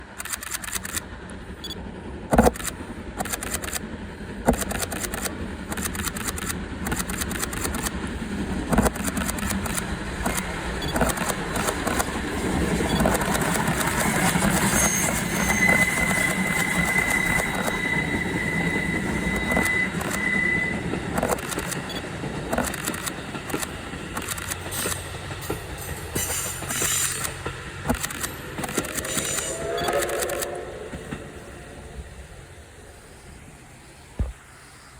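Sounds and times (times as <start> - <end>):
steam locomotive running: 0.0 - 34.9
thin high steady tone: 28.4 - 34.2.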